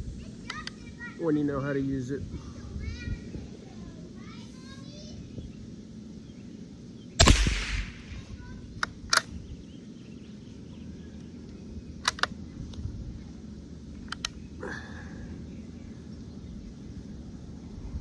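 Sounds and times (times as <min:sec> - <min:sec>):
rifle action metallic clicks: 0:07.2 - 0:08.4, 0:12.0 - 0:12.3
rifle shot: 0:07.2 - 0:08.4.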